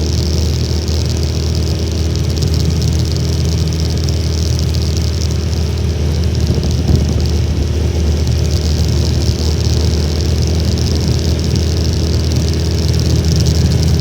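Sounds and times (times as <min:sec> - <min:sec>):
small motorcycle engine running: 0:00.0 - 0:14.0
strong wind rush: 0:06.3 - 0:14.0.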